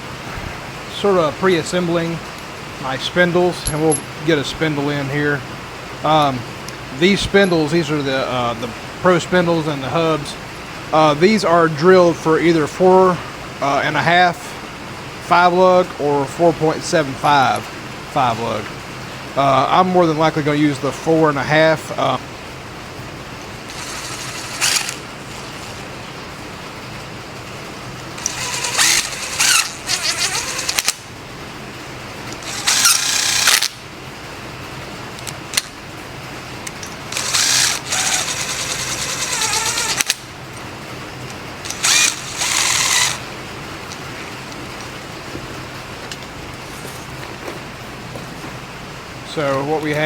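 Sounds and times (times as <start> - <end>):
steady low hum: 0.0 - 50.0
parts rustling and clicking: 3.6 - 4.2, 23.7 - 26.0, 27.9 - 31.1, 32.2 - 33.8, 35.1 - 35.8, 36.6 - 48.6.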